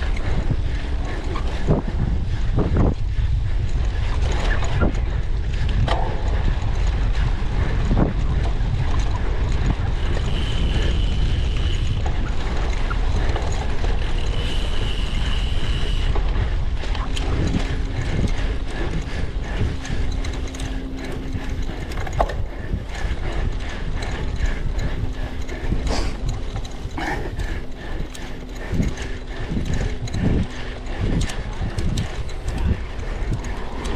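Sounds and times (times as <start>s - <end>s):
bike freehub ratchet clicking: 0.0s - 33.9s
low hum: 0.0s - 33.9s
wind rumble on microphone: 0.0s - 33.9s
high steady squeal: 9.7s - 33.9s.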